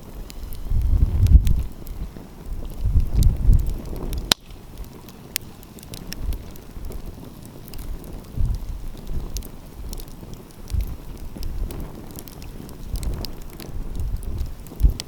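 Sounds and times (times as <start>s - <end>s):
wind rumble on microphone: 0.0s - 15.0s
wood fire crackling: 0.0s - 15.0s
sharp pops: 3.9s - 4.6s.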